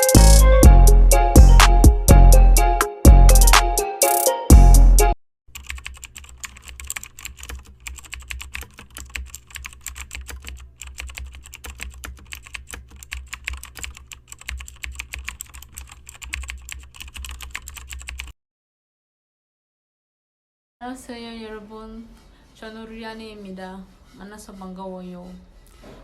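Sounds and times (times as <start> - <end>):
keyboard typing: 5.5 - 18.3.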